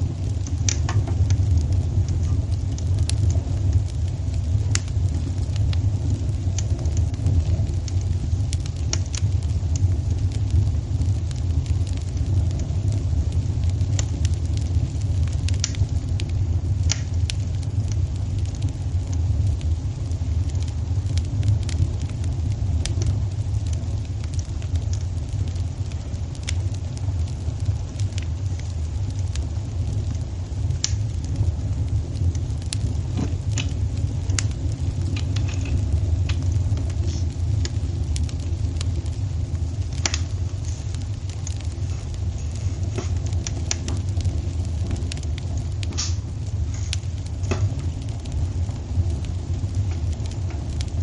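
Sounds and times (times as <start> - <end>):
fire crackling and popping: 0.0 - 51.0
wood fire rumbling: 0.0 - 51.0.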